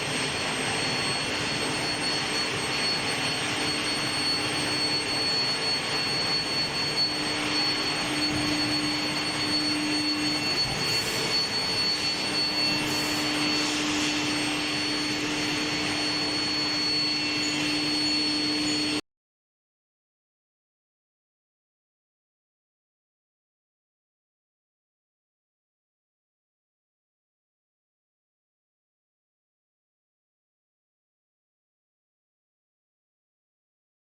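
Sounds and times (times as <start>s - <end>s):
machinery hiss: 0.0s - 18.0s
high-pitched whine: 0.0s - 19.0s
low hum: 0.0s - 19.0s.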